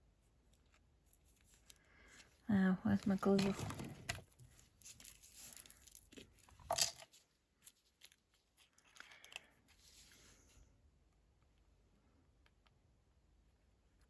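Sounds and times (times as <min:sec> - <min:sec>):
paper and craft items rustling: 0:00.2 - 0:10.6.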